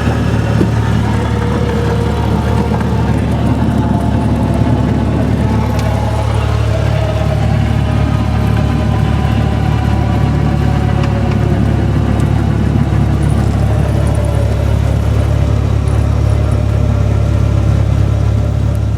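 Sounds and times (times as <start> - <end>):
light aircraft engine droning: 0.0 - 18.9.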